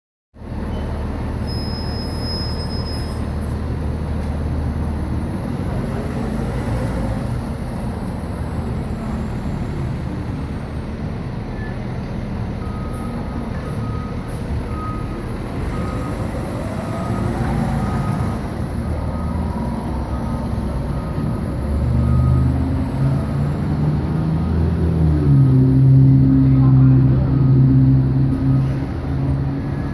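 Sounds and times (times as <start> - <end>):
diesel engine running: 3.2 - 29.9
reversing alarm beeping: 12.6 - 25.0.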